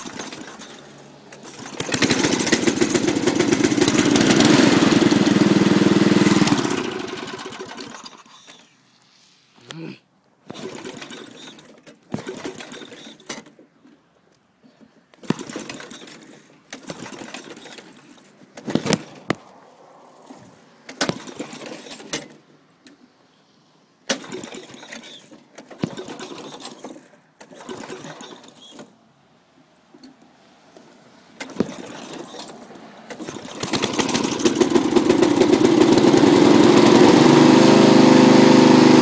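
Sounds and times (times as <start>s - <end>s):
electric starter cranking engine: 0.0s - 8.8s, 10.4s - 13.6s, 15.2s - 19.4s, 20.3s - 22.4s, 24.1s - 29.0s, 31.4s - 39.0s.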